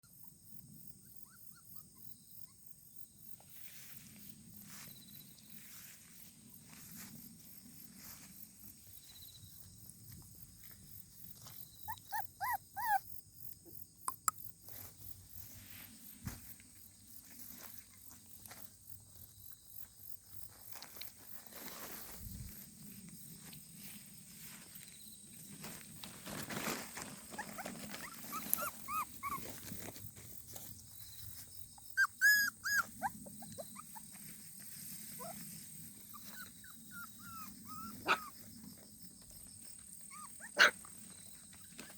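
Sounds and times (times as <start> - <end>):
puppy whimpering and yelping: 1.0 - 2.6, 11.8 - 13.2, 27.3 - 29.8, 31.8 - 34.2, 35.1 - 38.4, 40.0 - 40.8.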